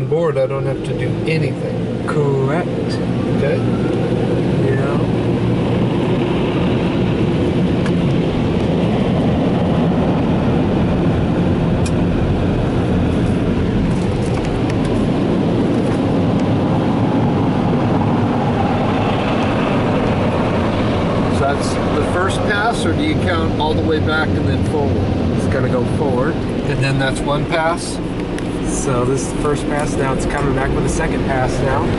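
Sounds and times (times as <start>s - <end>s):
car wash dryer blowers: 0.0s - 31.9s.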